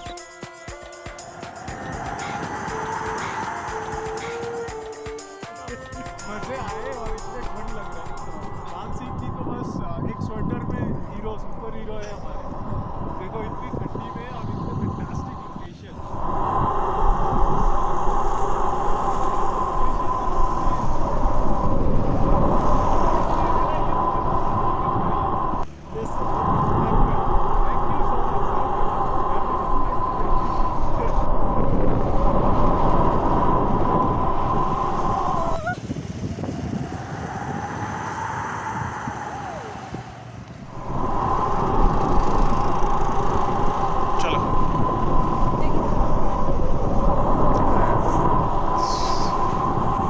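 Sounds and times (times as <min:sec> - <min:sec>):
road traffic: 0:35.9 - 0:50.0.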